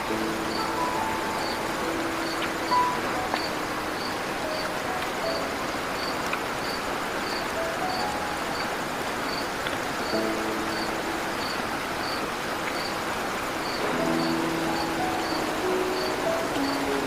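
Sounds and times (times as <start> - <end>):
insect chirping: 0.0 - 17.0
river water rushing: 0.0 - 17.0.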